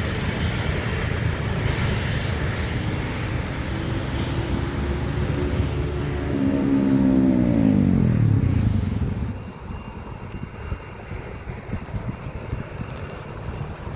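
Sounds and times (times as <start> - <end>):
jet airliner passing: 0.0 - 13.9
wind on microphone: 0.0 - 13.9
low rumble: 2.7 - 10.0.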